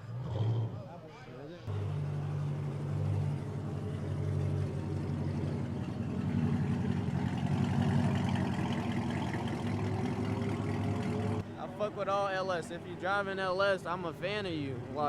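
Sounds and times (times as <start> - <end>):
car engine running: 1.7 - 11.4.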